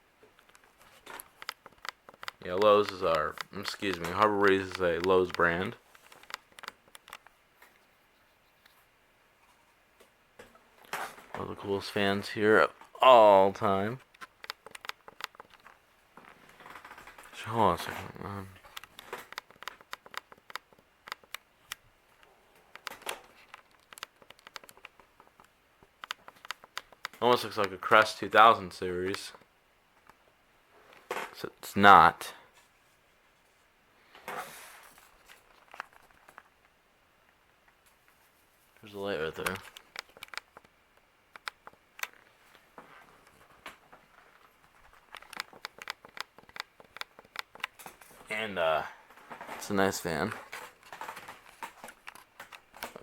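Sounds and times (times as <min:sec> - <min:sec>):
light clicks and ticks: 0:00.3 - 0:07.8, 0:11.6 - 0:15.8, 0:18.6 - 0:28.2, 0:38.8 - 0:42.6, 0:44.4 - 0:48.2.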